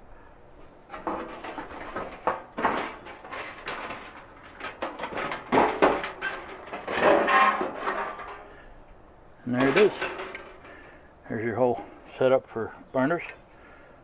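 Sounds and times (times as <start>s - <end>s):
sheet metal clattering and scraping: 0.9s - 8.7s, 9.5s - 11.0s.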